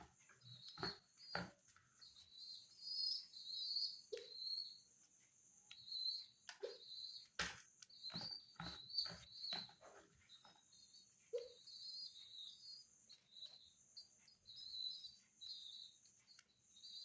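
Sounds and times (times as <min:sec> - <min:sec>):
pigeon squab squeaking cries: 0:05.9 - 0:13.6.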